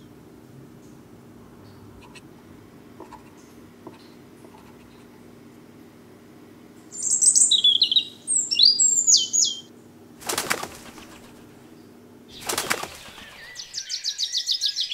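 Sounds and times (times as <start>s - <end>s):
small bird chirping: 6.9s - 9.7s, 10.8s - 14.9s
bird wing flaps: 10.2s - 11.7s, 12.3s - 13.8s.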